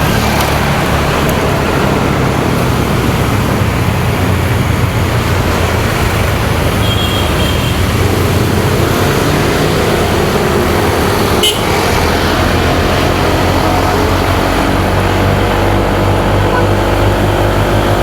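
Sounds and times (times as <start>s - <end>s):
motorcycle engine running: 0.0s - 18.0s
traffic: 0.0s - 18.0s
wind and road noise: 0.0s - 18.0s.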